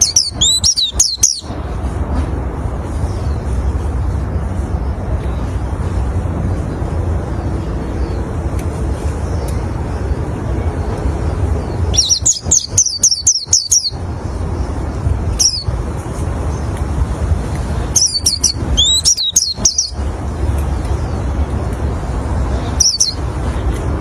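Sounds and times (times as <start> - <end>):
bird chirping: 0.0 - 1.6, 11.5 - 15.8, 17.9 - 20.1, 22.6 - 23.2.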